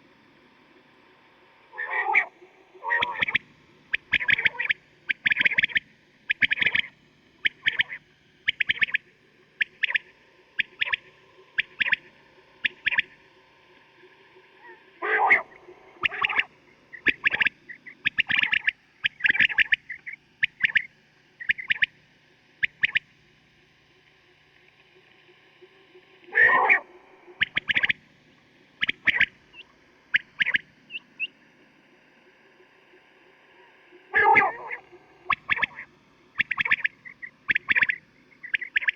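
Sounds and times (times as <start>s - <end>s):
faint chirps: 1.7s - 23.1s, 28.7s - 38.9s
quail calling: 1.8s - 9.0s, 14.6s - 21.9s, 22.6s - 23.0s, 26.3s - 28.0s, 28.8s - 31.3s, 34.1s - 38.9s.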